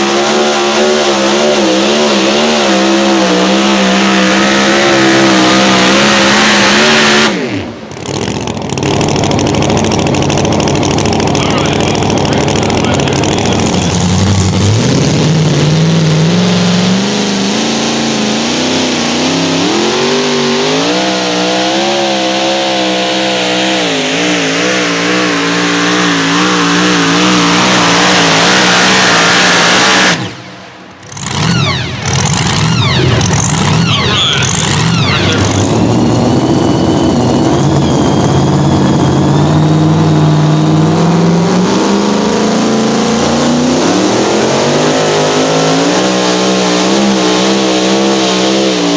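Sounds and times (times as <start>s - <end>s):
engine running at full throttle: 0.0s - 48.9s.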